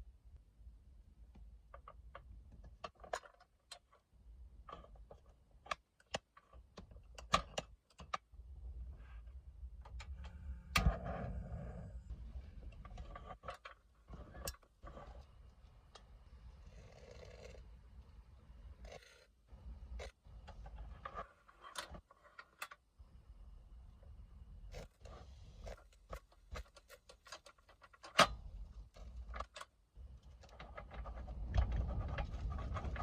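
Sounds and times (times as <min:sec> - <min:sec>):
sharp clicks and knocks: 0:01.3 - 0:08.5, 0:25.6 - 0:33.0
low steady rumble: 0:08.3 - 0:13.4, 0:28.3 - 0:33.0.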